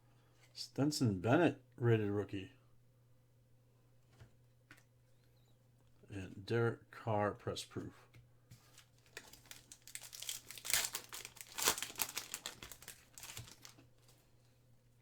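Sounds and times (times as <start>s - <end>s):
foil wrapper crinkling and tearing: 8.7s - 14.2s.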